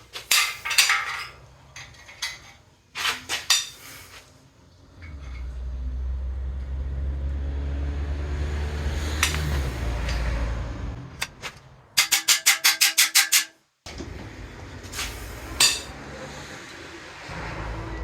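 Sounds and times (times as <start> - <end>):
metal tools clinking: 0.1 - 4.1, 9.2 - 10.4, 11.2 - 13.6, 15.6 - 15.9
low mechanical rumble: 4.4 - 12.0.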